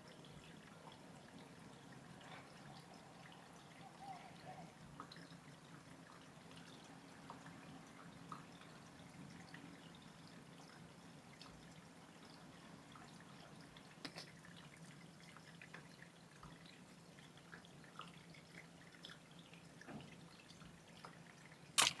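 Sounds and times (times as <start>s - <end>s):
small ticks and drips: 0.0s - 22.0s
sharp click: 21.8s - 22.0s.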